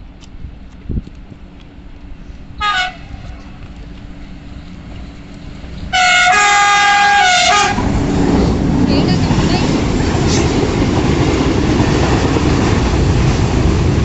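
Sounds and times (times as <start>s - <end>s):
train horn blasts: 2.6s - 3.5s, 5.9s - 7.9s.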